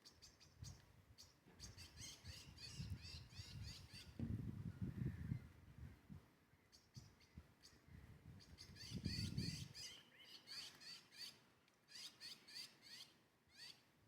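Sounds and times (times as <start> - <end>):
small bird chirping: 0.0 - 4.2.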